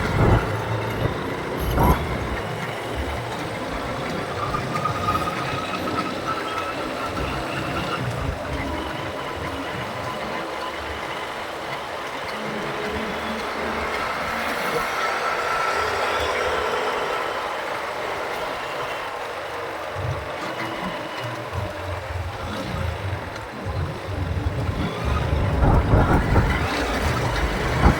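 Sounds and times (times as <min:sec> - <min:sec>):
low rumbles: 0:00.0 - 0:04.7, 0:22.3 - 0:27.9
traffic and road noise: 0:00.0 - 0:27.9.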